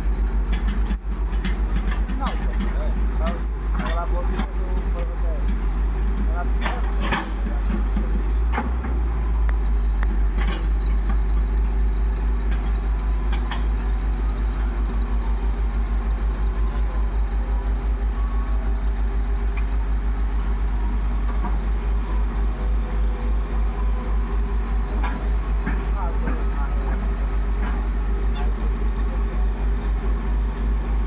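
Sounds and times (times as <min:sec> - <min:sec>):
diesel engine idling: 0:00.0 - 0:31.0.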